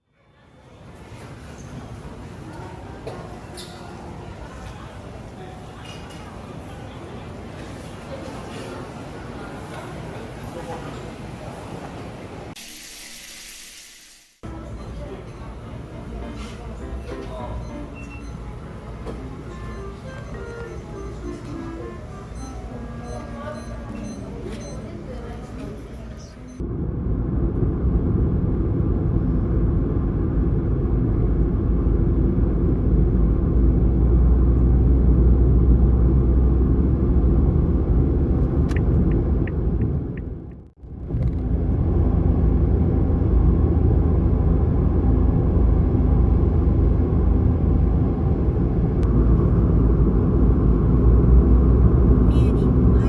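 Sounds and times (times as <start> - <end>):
car road and engine rumble: 26.6 - 53.0.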